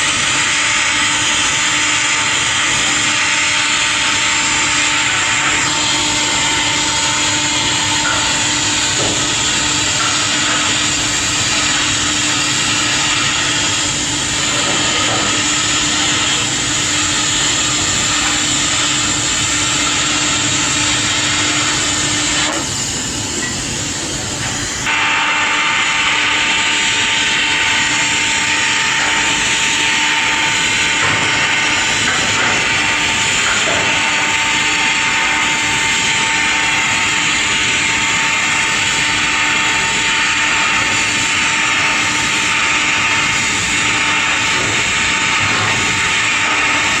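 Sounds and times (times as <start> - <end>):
hissing workshop machine: 0.0 - 47.0.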